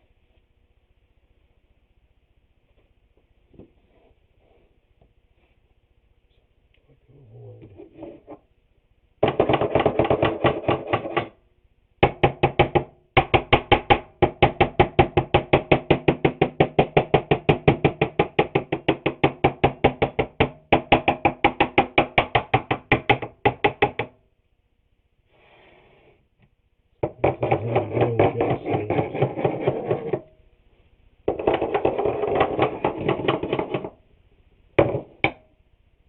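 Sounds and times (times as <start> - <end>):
tool knocking on wooden board: 9.2 - 11.4, 12.0 - 24.2, 27.0 - 30.3, 31.3 - 34.0, 34.8 - 35.5.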